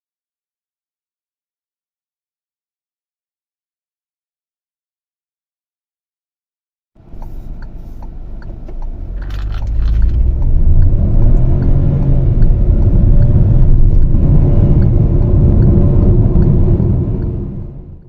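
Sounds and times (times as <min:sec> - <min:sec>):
car engine accelerating hard: 0:07.0 - 0:18.0.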